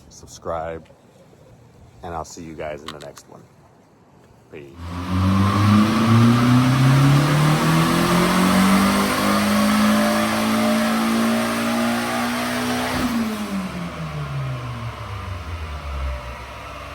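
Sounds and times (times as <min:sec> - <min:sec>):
car engine accelerating: 0:04.8 - 0:16.9.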